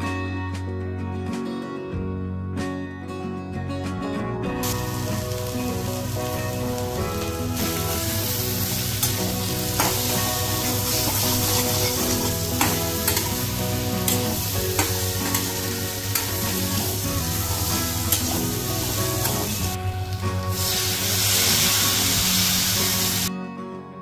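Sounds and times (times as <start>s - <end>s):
vegetables sizzling in a pan: 4.6s - 23.3s
metal spatula scraping a pan: 9.8s - 16.9s.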